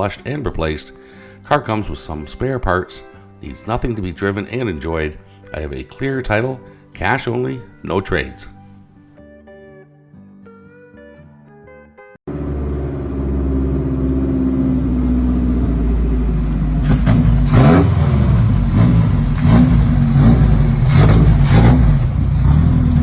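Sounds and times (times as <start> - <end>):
car engine revving: 12.3 - 23.0.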